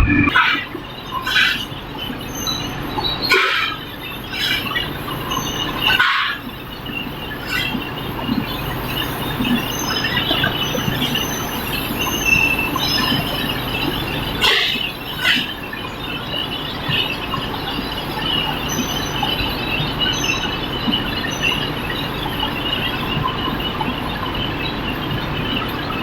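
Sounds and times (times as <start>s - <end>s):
metallic squeals of machinery: 0.0s - 16.6s
steady machinery noise: 0.0s - 26.0s.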